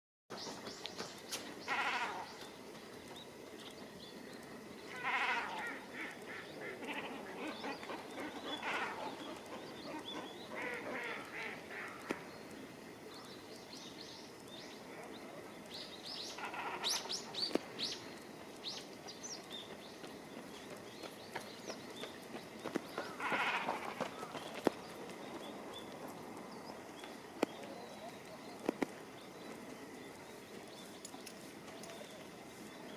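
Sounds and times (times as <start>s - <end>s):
cormorants calling: 1.6s - 2.4s, 4.9s - 12.3s, 16.2s - 17.6s, 23.0s - 24.4s.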